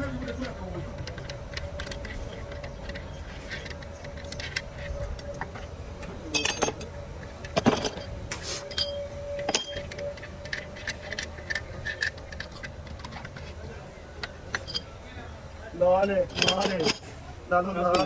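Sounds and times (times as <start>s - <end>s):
steady hum: 0.0s - 18.0s
tools and metal parts clinking: 0.0s - 18.0s
ringing metal knocks: 6.3s - 13.6s, 14.2s - 15.0s, 15.8s - 17.1s.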